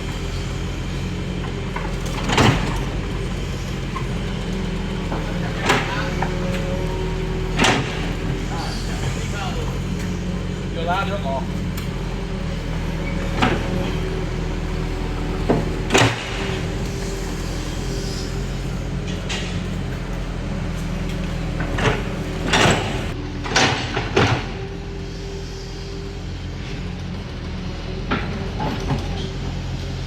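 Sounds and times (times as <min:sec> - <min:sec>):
metallic clanks and screeches: 0:00.0 - 0:24.6
bulldozer diesel engine running: 0:00.0 - 0:30.0.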